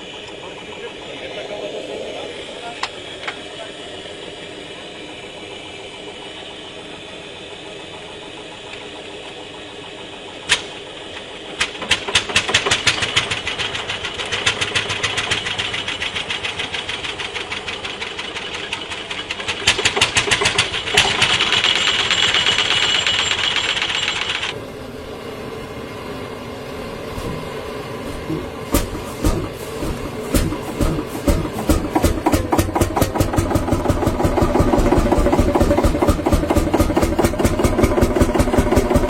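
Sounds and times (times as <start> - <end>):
vintage tractor engine exhaust beats: 0.0 - 24.6, 26.6 - 39.0.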